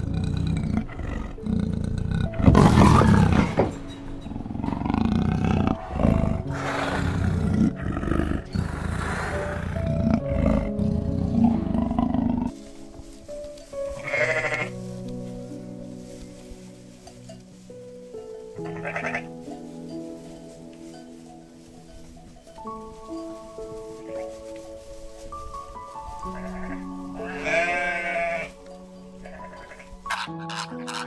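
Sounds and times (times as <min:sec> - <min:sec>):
big cat roaring: 0:00.0 - 0:03.7, 0:04.3 - 0:12.5
soft background music: 0:00.0 - 0:31.0
short bleat: 0:14.0 - 0:14.7, 0:26.6 - 0:28.5.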